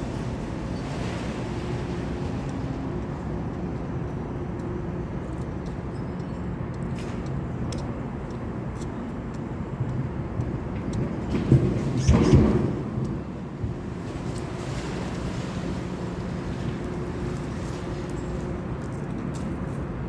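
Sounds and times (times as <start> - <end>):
low rumbling background noise: 0.0 - 20.0.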